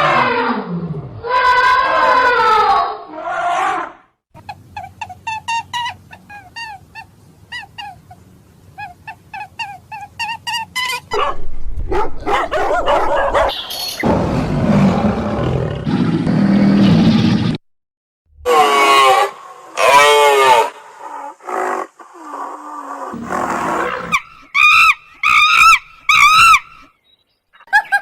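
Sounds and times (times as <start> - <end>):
rough noisy animal sound: 0.0 - 17.5, 18.4 - 26.9
dog yipping and whimpering: 8.8 - 13.6.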